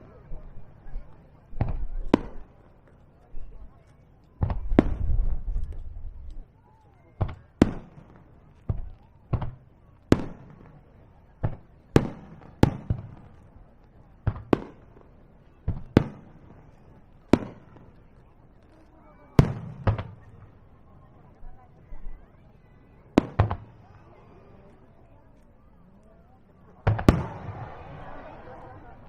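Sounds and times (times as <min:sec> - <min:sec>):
fireworks bangs: 0:07.2 - 0:13.4, 0:14.2 - 0:20.6, 0:23.1 - 0:24.5, 0:26.6 - 0:29.0.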